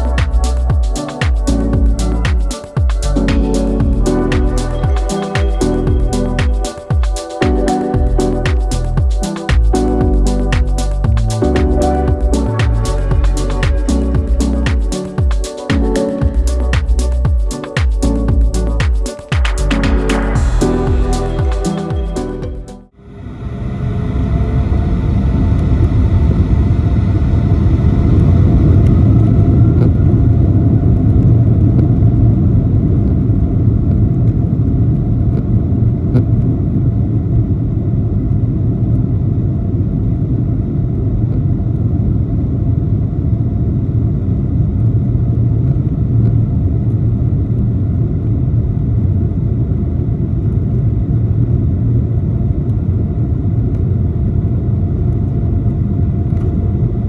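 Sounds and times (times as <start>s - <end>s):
faint rising whine: 0.0s - 33.9s.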